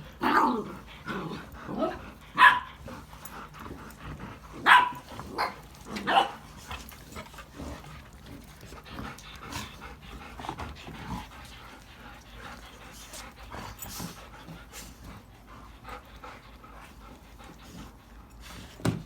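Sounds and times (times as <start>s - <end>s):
dogs barking: 1.7s - 2.8s, 4.5s - 6.6s.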